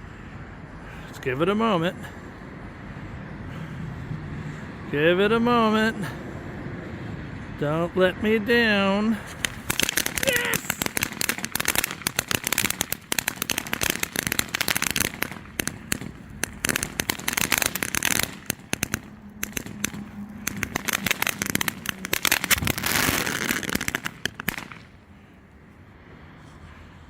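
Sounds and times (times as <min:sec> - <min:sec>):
firework hiss: 0:09.3 - 0:25.0
firework crackling and popping: 0:09.3 - 0:25.1.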